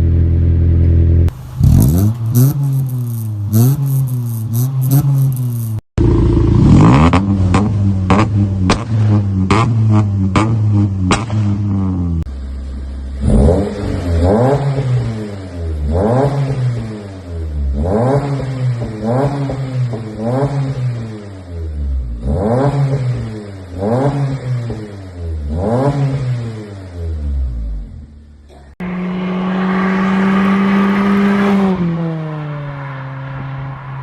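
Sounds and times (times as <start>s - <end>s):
car engine revving: 0.0s - 28.2s, 28.8s - 34.0s
engine running with sharp pops: 7.0s - 11.8s.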